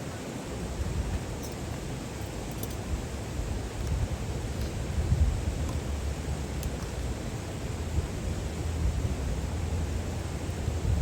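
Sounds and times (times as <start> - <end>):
wind buffeting microphone: 3.0 - 6.4, 7.7 - 11.0.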